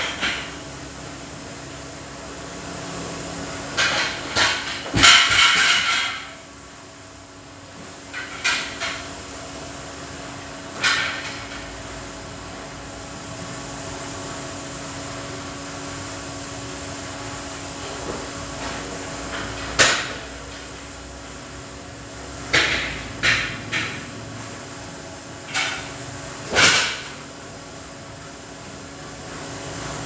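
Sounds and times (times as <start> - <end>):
steady mechanical hum: 0.0 - 30.0
sharp knocks on metal: 22.5 - 24.0.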